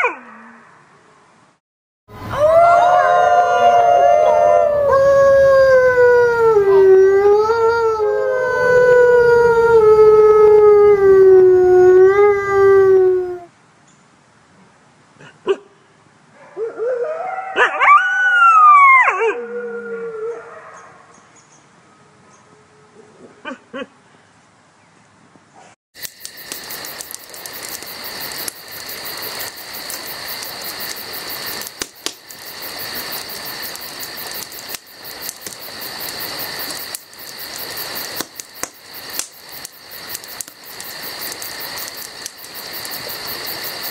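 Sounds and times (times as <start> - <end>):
wolf howling: 2.2 - 13.5, 16.5 - 20.9.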